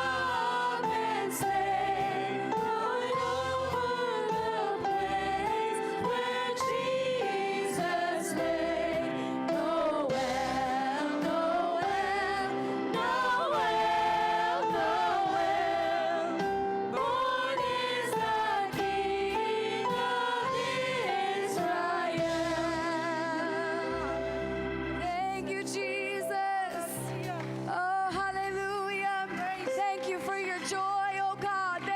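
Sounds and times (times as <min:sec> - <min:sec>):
children's choir singing: 0:00.0 - 0:24.3
musical accompaniment: 0:00.0 - 0:31.9.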